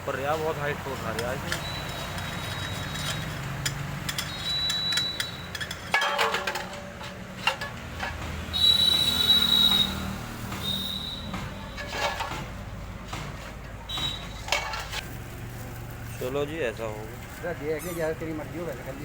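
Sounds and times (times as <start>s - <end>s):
tractor diesel engine running: 0.0s - 19.0s
metallic clinks and knocks: 1.0s - 8.6s, 11.3s - 15.0s.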